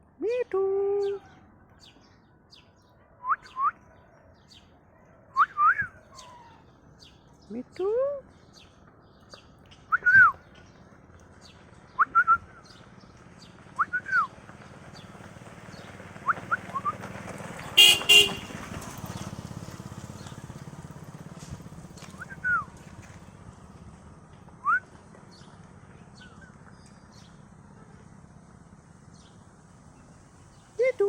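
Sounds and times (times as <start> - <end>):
loud honks: 17.8 - 18.8.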